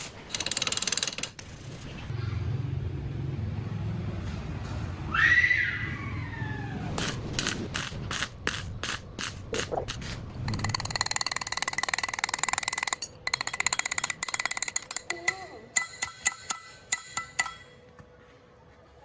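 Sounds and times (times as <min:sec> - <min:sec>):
sharp mechanical clicks: 0:00.0 - 0:01.6
ratchet clicking: 0:00.3 - 0:01.8, 0:07.0 - 0:17.7.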